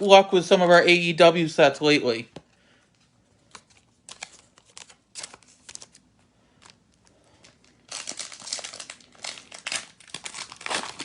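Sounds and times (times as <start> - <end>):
foil wrapper crinkling and tearing: 3.5 - 11.0.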